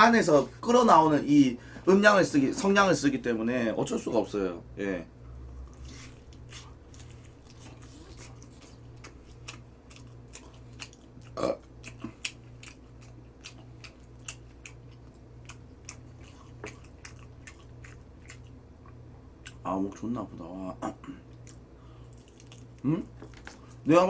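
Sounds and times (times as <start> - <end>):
chewing crispy fried chicken: 5.6 - 20.0, 21.2 - 24.0.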